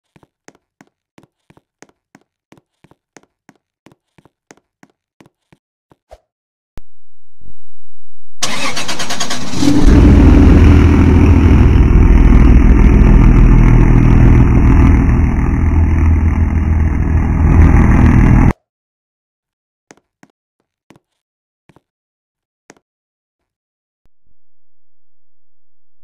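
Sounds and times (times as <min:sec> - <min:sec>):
starter cranking engine: 0:08.4 - 0:10.4
car engine running: 0:08.4 - 0:18.5.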